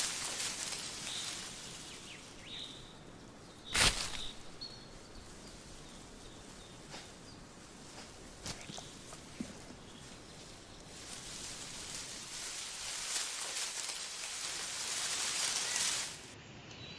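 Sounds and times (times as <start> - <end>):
bird chirps: 1.0 - 7.5
sharp crack: 3.7 - 4.6.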